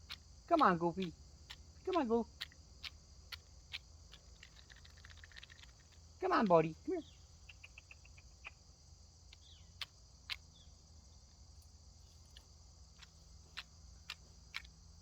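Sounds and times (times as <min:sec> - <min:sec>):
quick ticks: 0:00.0 - 0:06.1, 0:13.0 - 0:14.8
insects chirring: 0:00.0 - 0:15.0.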